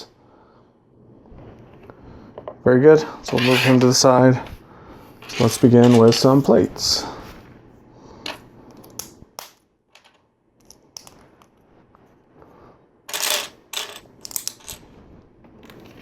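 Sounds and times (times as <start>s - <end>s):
plastic toy bricks clattering: 13.1s - 14.8s.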